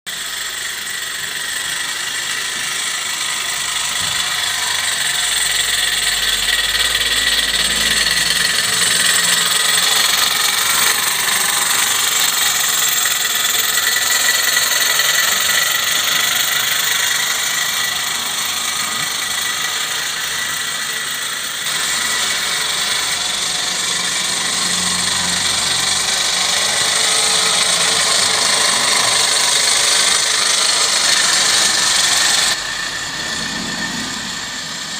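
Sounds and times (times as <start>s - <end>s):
model steam engine hissing: 0.1s - 34.9s.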